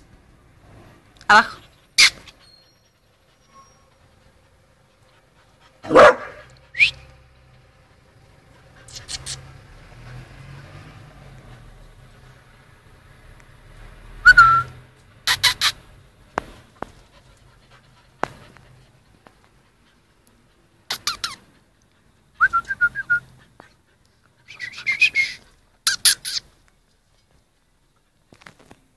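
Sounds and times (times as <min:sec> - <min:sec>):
dog whimpering: 0:02.0 - 0:04.1.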